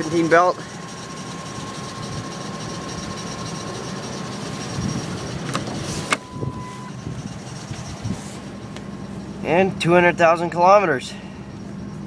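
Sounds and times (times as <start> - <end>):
truck engine idling: 0.0 - 12.0
thin steady squeak: 0.8 - 9.3.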